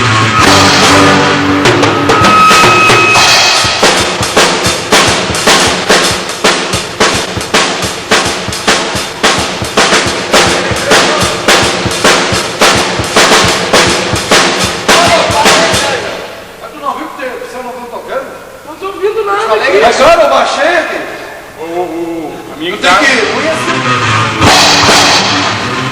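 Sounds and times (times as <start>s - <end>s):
rock band playing: 0.0s - 16.1s, 23.3s - 25.9s
drum kit steady beat: 0.0s - 16.6s, 24.4s - 25.9s.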